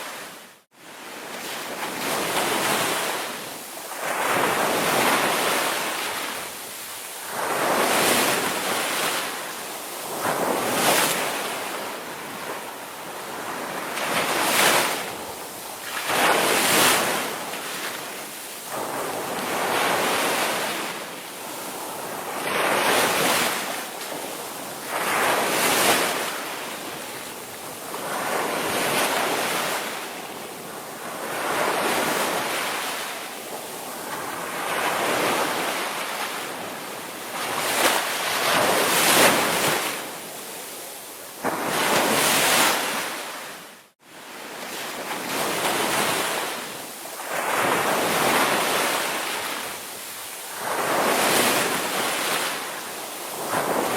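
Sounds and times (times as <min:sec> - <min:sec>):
ocean waves breaking: 0:41.4 - 0:53.9.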